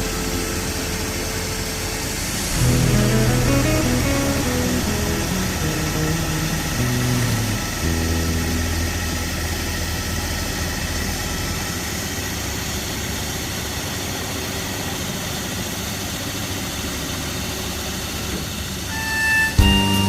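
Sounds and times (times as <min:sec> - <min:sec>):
construction machinery engine rumble: 0:00.0 - 0:14.3.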